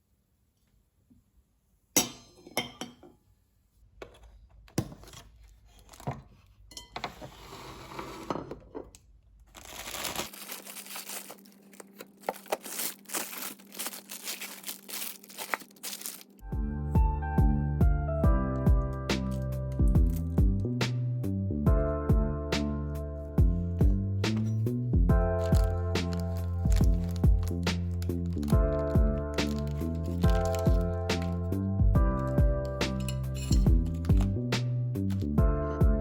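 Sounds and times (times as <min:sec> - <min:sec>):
crinkling and rustling: 0:04.0 - 0:08.7, 0:09.4 - 0:16.4, 0:25.3 - 0:31.5, 0:32.2 - 0:34.4, 0:35.0 - 0:35.3
music: 0:16.4 - 0:36.0.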